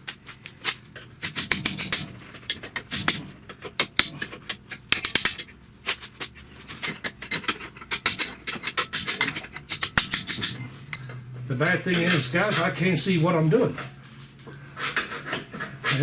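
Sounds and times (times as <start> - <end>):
hand tools clinking on metal: 6.2 - 12.9.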